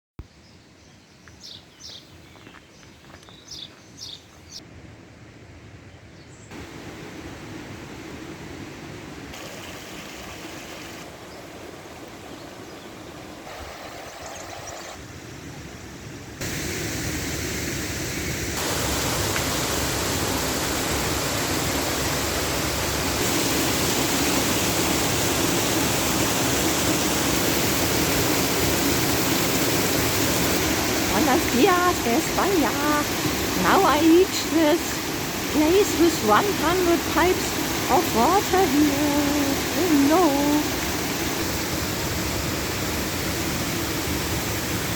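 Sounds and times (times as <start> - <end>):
fountain water pouring into basin: 18.6 - 44.9.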